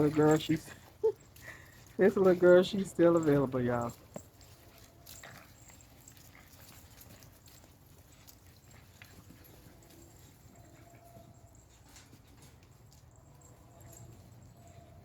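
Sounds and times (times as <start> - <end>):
dogs moving and playing: 0.0 - 15.0.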